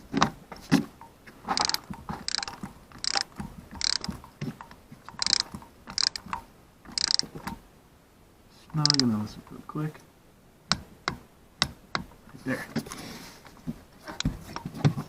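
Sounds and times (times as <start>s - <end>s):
torque wrench ratchet clicks: 1.6s - 7.3s, 8.8s - 9.1s.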